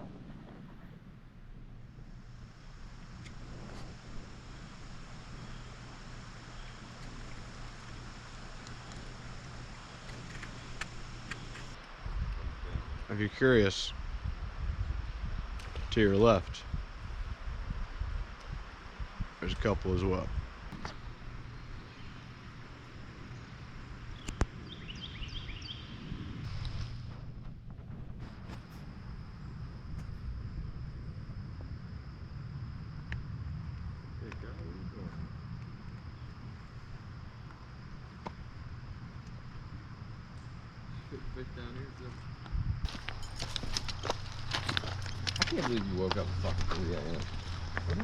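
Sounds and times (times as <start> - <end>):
outdoor background noise: 0.0 - 48.0
wind rumble on microphone: 0.0 - 48.0
bird chirping: 20.8 - 26.4.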